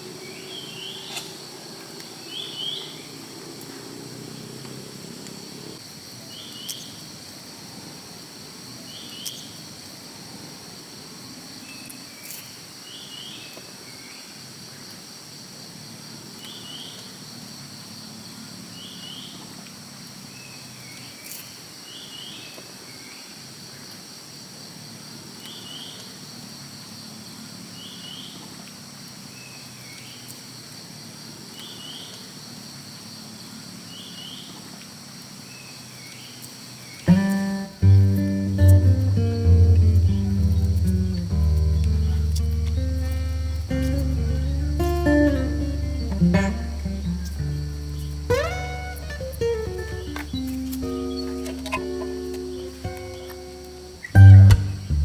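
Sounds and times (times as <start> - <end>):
crickets trilling: 0.0 - 54.9
insect short chirped call: 35.5 - 55.0.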